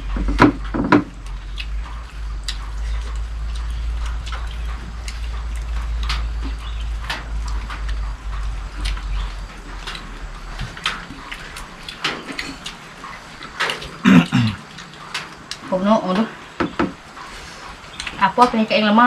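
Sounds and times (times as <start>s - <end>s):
rain falling: 0.0s - 19.0s
loud knocks: 0.2s - 1.1s, 16.6s - 17.0s.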